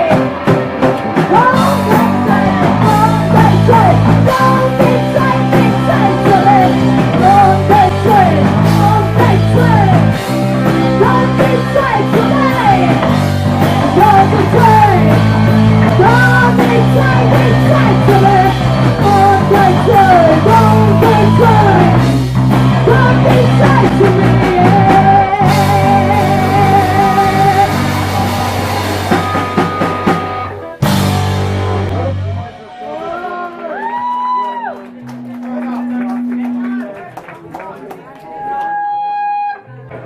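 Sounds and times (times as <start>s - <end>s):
lead guitar line bending: 0.0s - 32.6s, 34.8s - 37.2s
punk rock band playing live: 0.0s - 37.0s.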